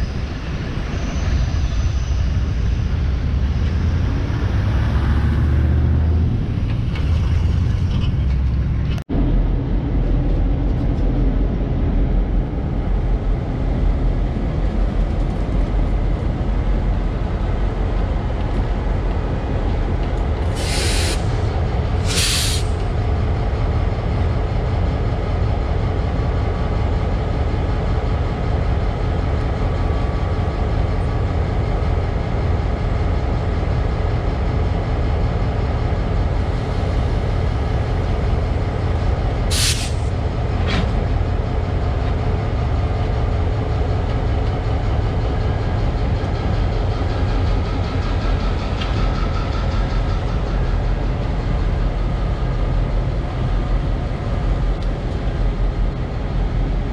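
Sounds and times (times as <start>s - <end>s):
diesel locomotive rumbling: 0.0s - 56.9s
air hissing: 20.5s - 22.9s, 39.5s - 40.2s.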